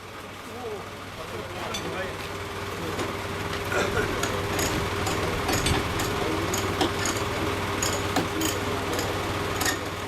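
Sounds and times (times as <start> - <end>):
engine idling: 0.1 - 10.0.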